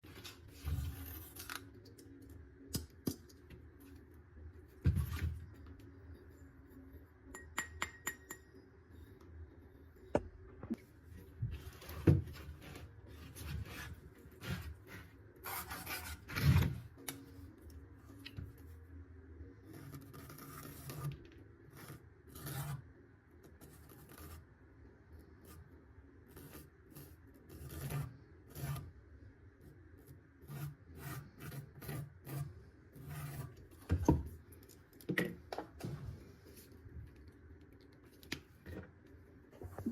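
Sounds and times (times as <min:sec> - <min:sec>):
rubbing and scraping wood: 0:11.4 - 0:16.8.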